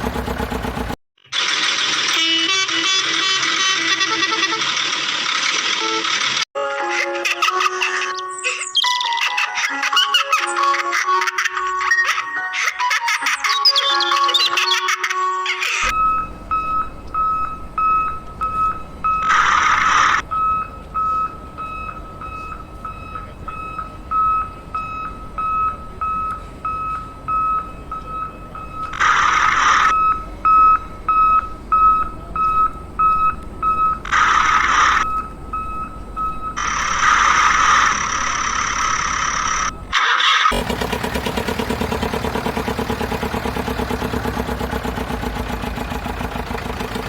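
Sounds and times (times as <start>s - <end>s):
reversing alarm beeping: 15.8s - 40.0s.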